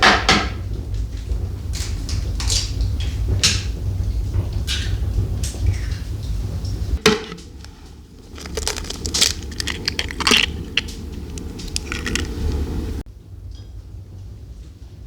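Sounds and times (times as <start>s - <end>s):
steady low rumble: 0.6s - 13.3s
objects knocking and clicking: 7.0s - 13.0s.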